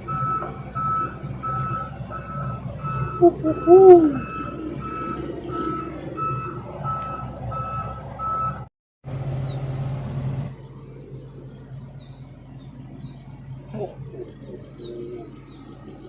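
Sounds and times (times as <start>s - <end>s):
excavator travel alarm beeping: 0.0s - 8.7s
diesel engine running: 0.0s - 16.0s
bird chirps: 0.1s - 6.4s, 9.4s - 10.0s, 10.6s - 16.0s.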